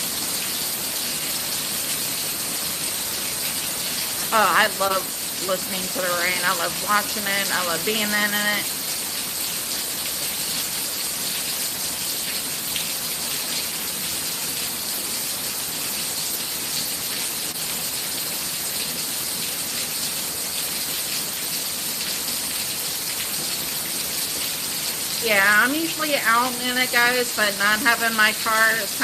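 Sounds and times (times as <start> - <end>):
torrential rain pouring: 0.0 - 29.0.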